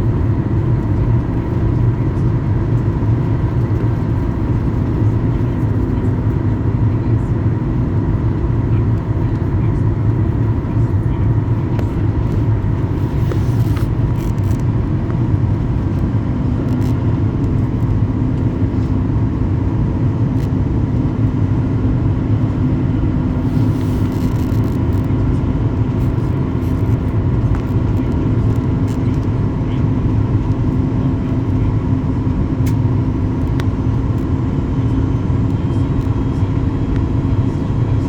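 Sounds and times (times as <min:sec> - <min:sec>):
aircraft engine and airflow rumble: 0:00.0 - 0:38.0
faint steady whine: 0:00.0 - 0:38.0.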